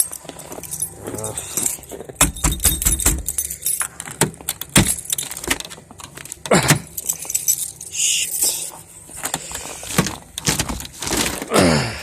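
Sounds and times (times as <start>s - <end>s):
keys jangling: 0.0s - 8.8s.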